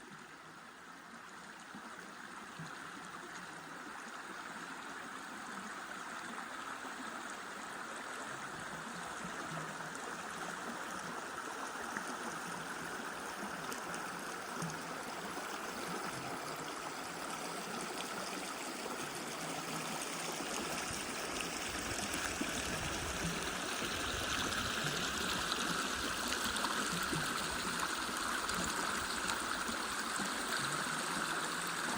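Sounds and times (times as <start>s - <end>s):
stream rushing over rocks: 12.7s - 31.9s.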